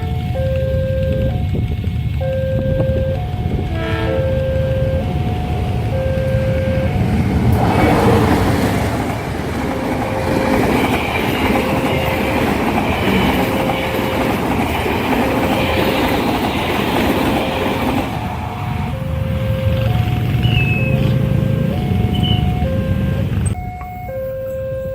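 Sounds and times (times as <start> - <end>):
crossing warning alarm tone: 0.0 - 24.9
train wheels clattering over rails: 6.7 - 22.6.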